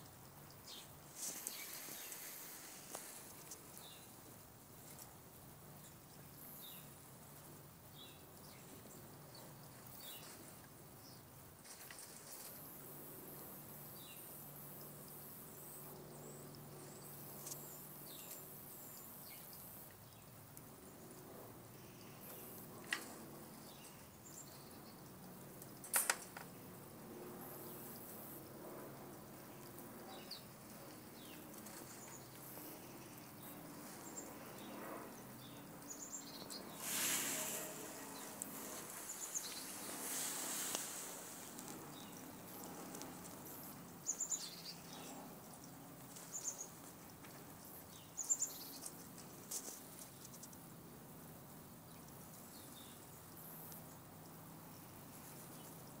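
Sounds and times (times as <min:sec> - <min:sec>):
small birds chirping: 0:00.0 - 0:12.3, 0:13.3 - 0:26.6, 0:27.2 - 0:50.8, 0:51.6 - 0:56.0
rustling: 0:00.8 - 0:05.4, 0:36.7 - 0:43.7.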